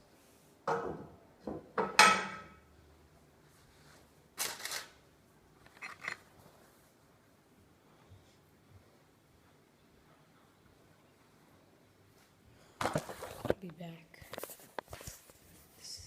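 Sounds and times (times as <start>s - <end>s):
cookware and utensils clattering: 0.7s - 2.6s.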